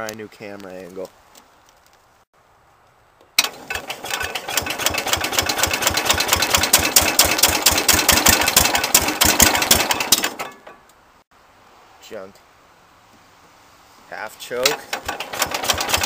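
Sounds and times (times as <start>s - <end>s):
engine cranking without starting: 3.4s - 10.8s, 14.6s - 16.0s.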